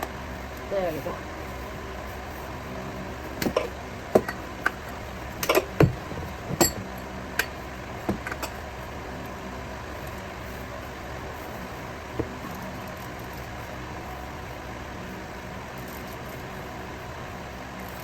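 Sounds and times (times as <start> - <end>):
steady low hum: 0.0 - 18.0
metal hand tools clinking: 6.5 - 7.0.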